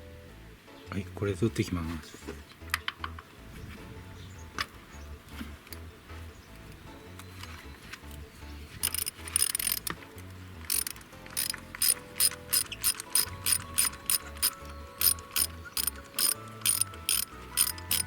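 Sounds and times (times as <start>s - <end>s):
ratchet wrench clicking: 8.8s - 10.0s, 10.6s - 18.0s.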